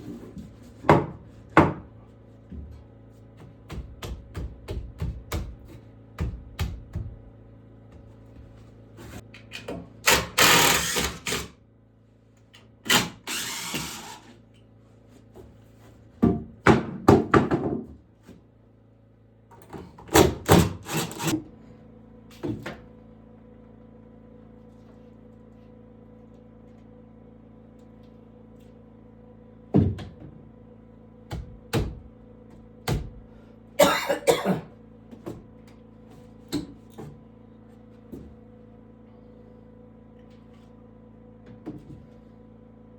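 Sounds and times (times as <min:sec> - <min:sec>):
tool working wood: 0:10.1 - 0:11.5, 0:12.9 - 0:14.4, 0:20.2 - 0:21.4.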